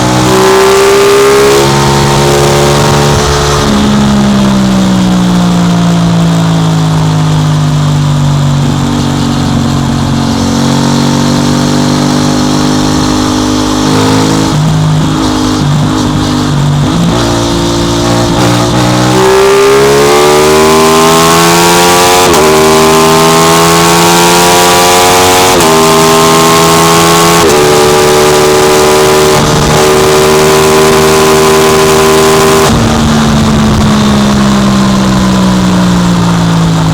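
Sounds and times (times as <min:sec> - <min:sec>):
wind rushing over microphone: 0:00.0 - 0:05.8, 0:31.3 - 0:36.9
motorcycle engine accelerating: 0:00.0 - 0:36.9.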